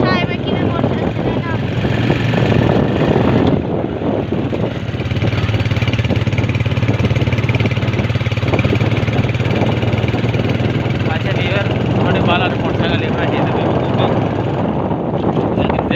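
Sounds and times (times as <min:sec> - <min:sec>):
small motorcycle engine puttering: 0:04.3 - 0:13.0.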